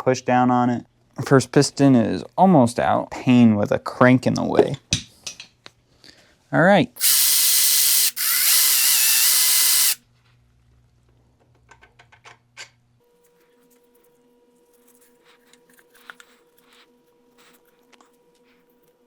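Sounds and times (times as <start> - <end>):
handheld power tool running: 7.0 - 10.0.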